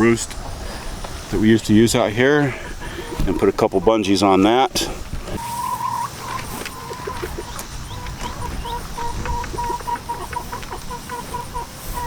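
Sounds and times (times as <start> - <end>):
hens clucking: 0.0 - 12.0
pulsing repeated hen call: 5.3 - 12.0.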